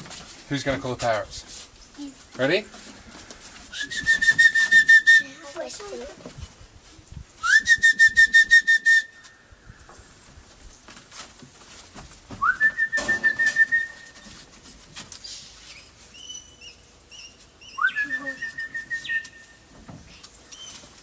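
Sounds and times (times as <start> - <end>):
person whistling: 3.7 - 5.4, 7.4 - 9.2, 12.4 - 14.2, 17.8 - 19.4.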